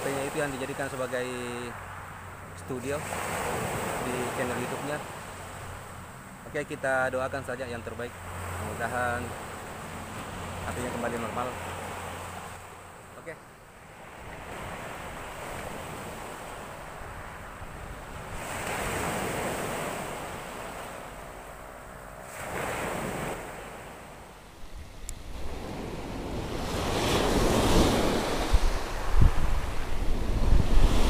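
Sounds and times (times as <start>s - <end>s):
waves breaking on shore: 0.0s - 31.0s
wind buffeting microphone: 24.5s - 31.0s.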